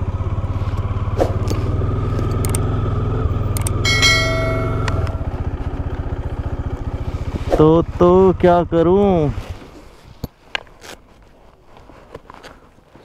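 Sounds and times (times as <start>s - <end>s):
motorcycle engine idling: 0.0s - 9.2s
button clicks: 3.5s - 5.3s
bell chime: 3.8s - 5.5s.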